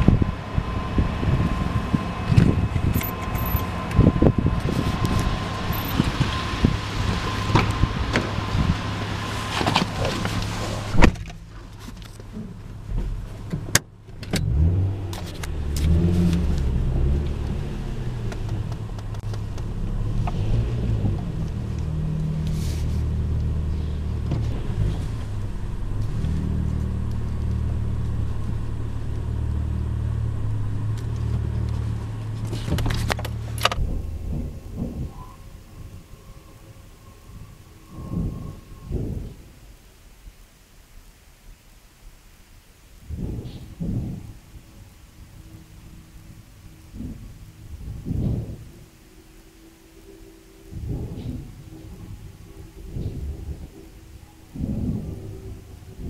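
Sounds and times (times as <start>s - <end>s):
car engine idling inside cabin: 0.0s - 56.0s
car door shutting: 9.5s - 11.4s
steady tone: 33.6s - 39.9s, 44.4s - 56.0s.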